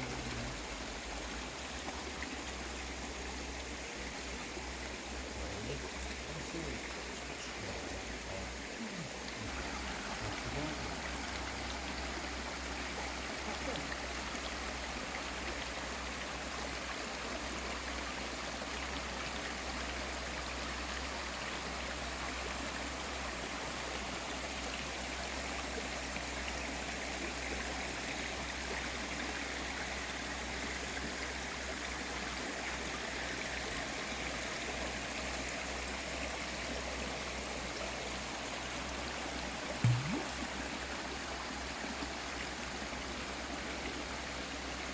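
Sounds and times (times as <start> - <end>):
stream flowing over rocks: 0.0 - 44.9.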